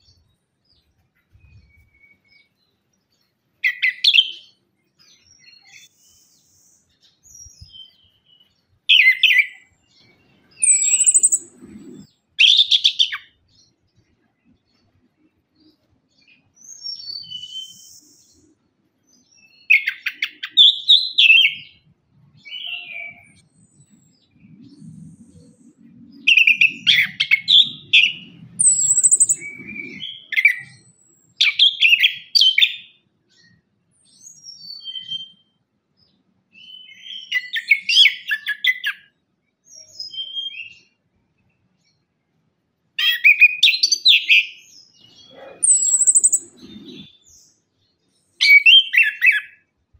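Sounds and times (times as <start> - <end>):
thrush singing whistles and trills: 1.2 - 2.6, 3.6 - 13.5, 16.6 - 18.6, 19.4 - 35.6, 36.6 - 39.1, 39.7 - 41.0, 43.0 - 47.5, 48.2 - 49.7.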